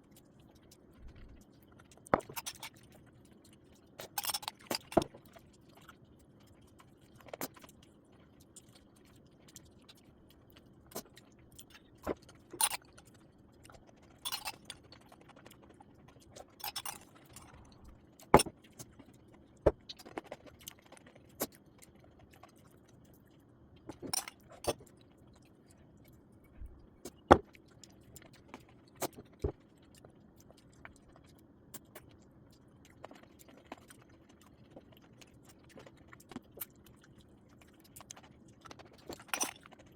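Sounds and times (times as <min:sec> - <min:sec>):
faint steady hum: 0:00.0 - 0:39.9
utensils and dishes clinking: 0:02.2 - 0:02.7, 0:04.1 - 0:05.1, 0:12.6 - 0:12.8, 0:14.2 - 0:14.8, 0:16.6 - 0:18.5, 0:23.9 - 0:24.8, 0:39.1 - 0:39.6.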